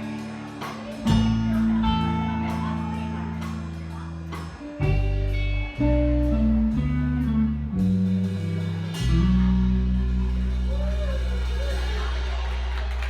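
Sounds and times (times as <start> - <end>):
guitar playing chords: 0.0 - 11.6.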